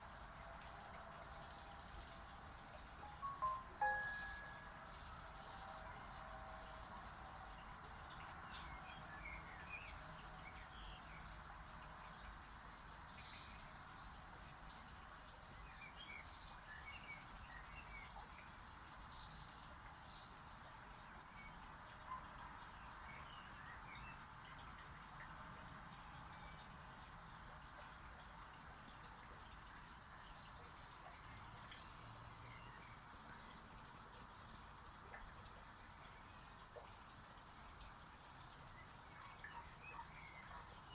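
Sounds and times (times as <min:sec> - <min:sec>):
small birds cheeping: 0:00.0 - 0:40.9
steady background hiss: 0:02.9 - 0:05.1.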